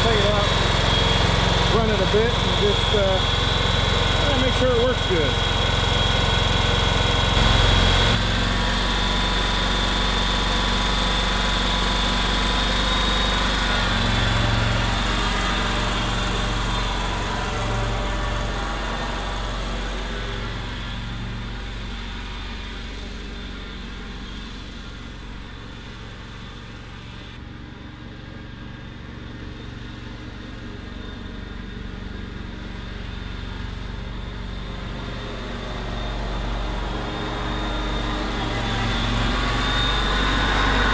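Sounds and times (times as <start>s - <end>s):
mower engine running: 0.0s - 40.9s.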